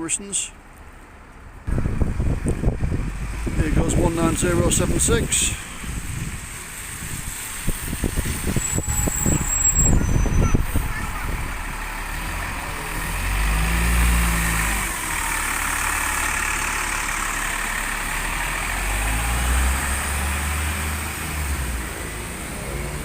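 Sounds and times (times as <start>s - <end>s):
diesel bus engines: 0.0s - 23.0s
tyres hissing on wet street: 2.9s - 23.0s
rain: 11.9s - 23.0s.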